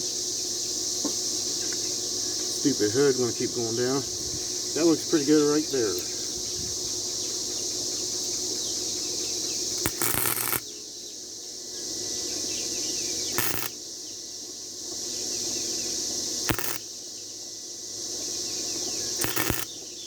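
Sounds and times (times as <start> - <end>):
high insect drone: 0.0 - 20.0
welding arc crackle: 9.7 - 10.7, 13.3 - 13.8, 16.4 - 16.9, 19.2 - 19.8.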